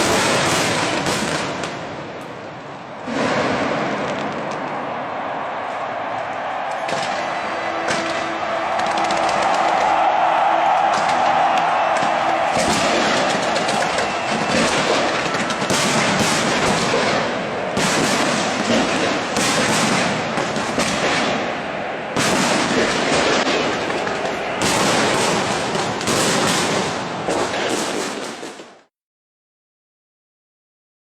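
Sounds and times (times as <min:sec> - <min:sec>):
fireworks crackling and popping: 0:00.0 - 0:01.9, 0:06.9 - 0:21.5, 0:22.2 - 0:28.8
firework bursts: 0:00.0 - 0:02.1, 0:06.5 - 0:21.6, 0:22.2 - 0:28.8.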